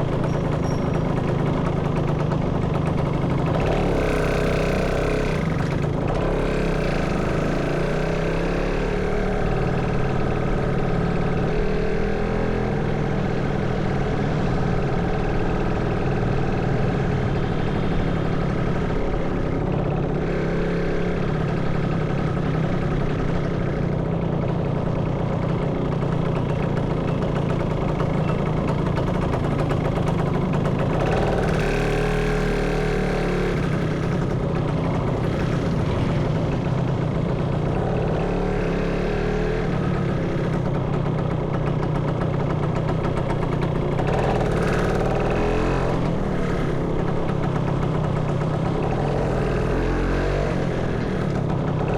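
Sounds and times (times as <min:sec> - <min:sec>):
motorcycle engine revving: 0:00.0 - 0:51.9
road and wind noise: 0:00.0 - 0:51.9.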